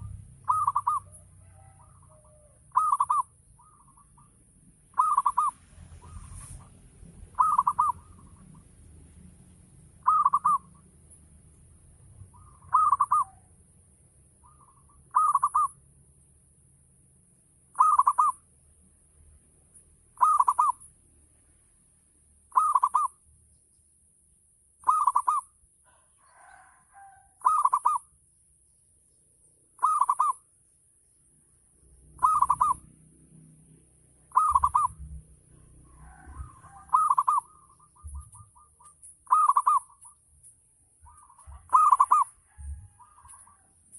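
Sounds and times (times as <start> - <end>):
dove cooing: 0.0 - 4.3, 4.9 - 8.7, 10.0 - 10.8, 12.3 - 13.5, 14.4 - 15.8, 17.8 - 18.4, 20.2 - 20.8, 22.5 - 23.1, 24.8 - 28.1, 29.8 - 30.4, 32.1 - 32.9, 34.2 - 40.2, 41.0 - 43.8.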